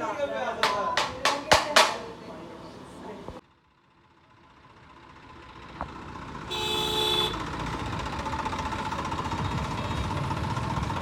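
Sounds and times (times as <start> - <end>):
vehicle engine running: 3.5 - 11.0.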